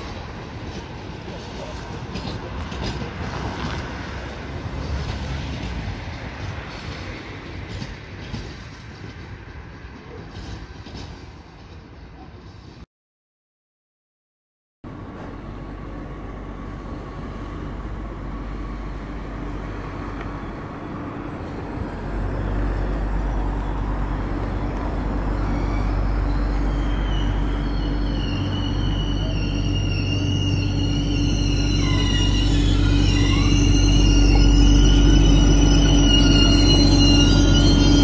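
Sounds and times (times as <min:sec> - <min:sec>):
train rumble: 0:00.0 - 0:12.8, 0:14.9 - 0:38.0
high-pitched wheel squeal: 0:23.5 - 0:38.0.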